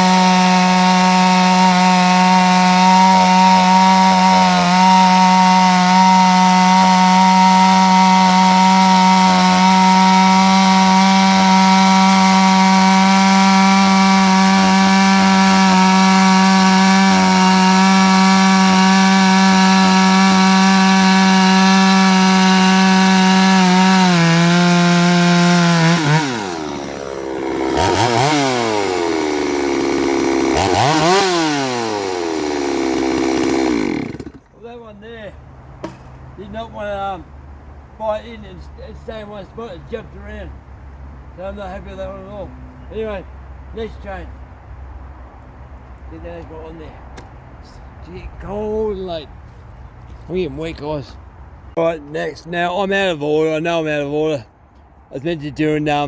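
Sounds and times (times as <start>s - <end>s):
chainsaw cutting log: 0.0s - 34.6s.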